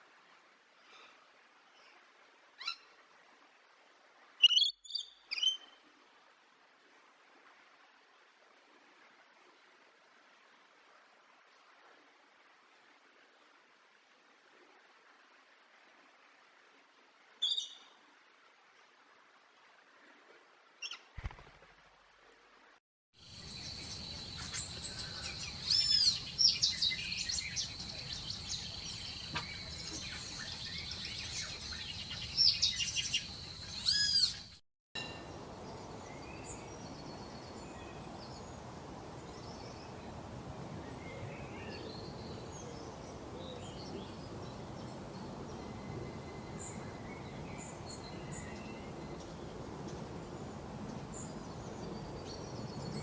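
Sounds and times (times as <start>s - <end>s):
hissing natural background: 0.0s - 53.0s
birds singing whistled phrases: 4.4s - 5.8s, 24.0s - 34.6s
distant bird chirps: 23.4s - 35.8s.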